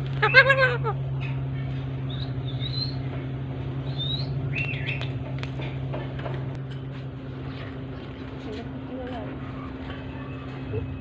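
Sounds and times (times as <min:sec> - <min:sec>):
steady low hum: 0:00.0 - 0:11.0
faint high bird chirps: 0:02.1 - 0:03.1.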